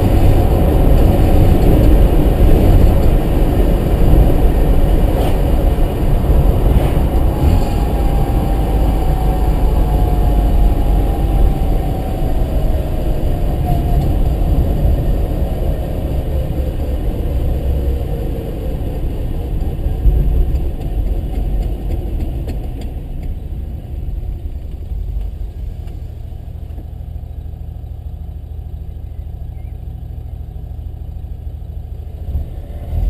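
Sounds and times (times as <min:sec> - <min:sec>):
car engine droning: 0:00.0 - 0:33.0
faint falling whine: 0:07.0 - 0:15.2.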